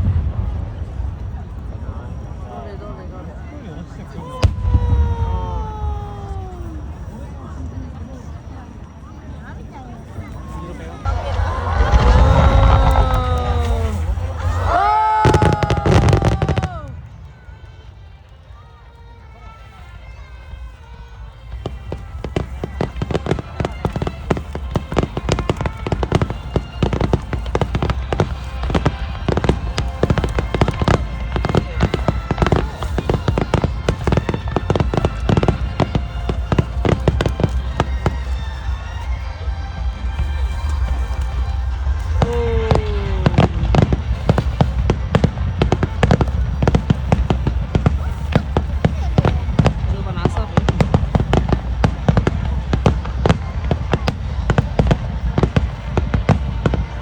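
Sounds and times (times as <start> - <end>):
fireworks bangs and crackles: 0.0 - 57.0
low rumble: 11.0 - 14.7.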